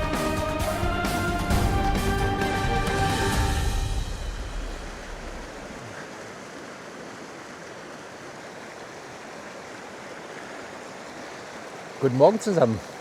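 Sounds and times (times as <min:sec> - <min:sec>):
music: 0:00.0 - 0:05.2
stream running water: 0:03.1 - 0:13.0.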